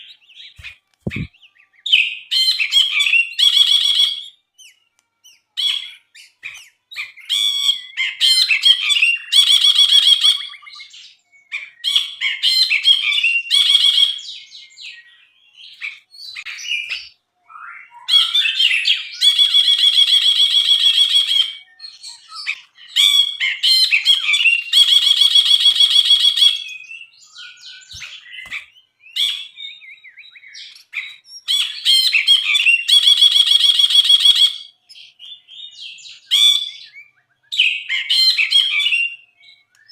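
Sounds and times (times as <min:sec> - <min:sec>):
bulbul singing chattering phrases: 0:00.6 - 0:01.6.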